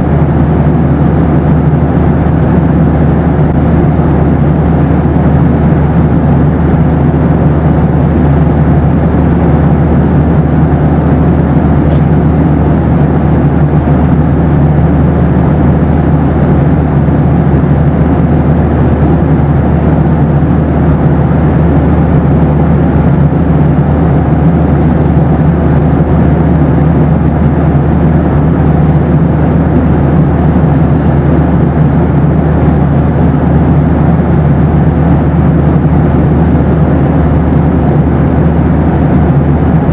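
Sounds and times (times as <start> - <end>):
airplane cabin engine rumble: 0.0 - 39.9
faint steady hum: 0.0 - 39.9.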